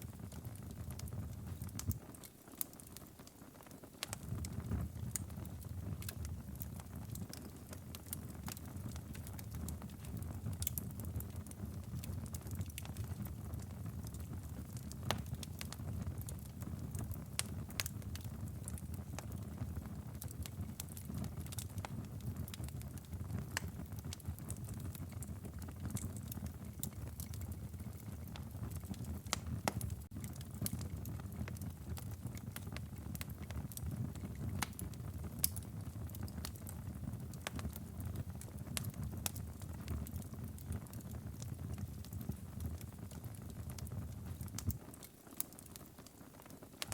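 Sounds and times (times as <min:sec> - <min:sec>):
low rumble of flames: 0:00.0 - 0:02.8, 0:03.7 - 0:46.2
wood fire crackling and popping: 0:00.0 - 0:46.9.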